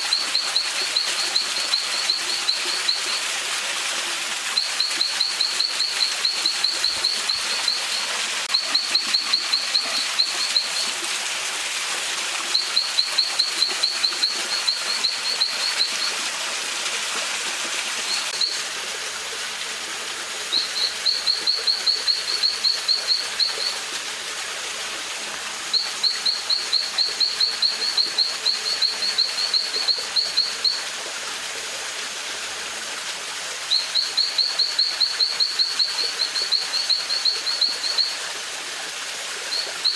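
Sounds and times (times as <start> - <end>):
stream water hissing: 0.0 - 39.9
bird chirping: 0.1 - 3.2, 4.6 - 10.8, 12.5 - 16.1, 20.5 - 23.8, 25.7 - 30.8, 33.7 - 38.2.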